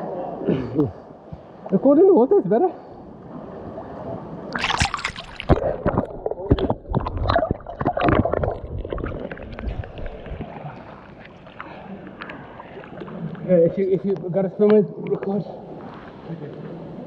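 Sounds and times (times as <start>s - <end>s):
water splashing and gurgling: 4.5s - 13.8s
water lapping: 4.5s - 14.1s.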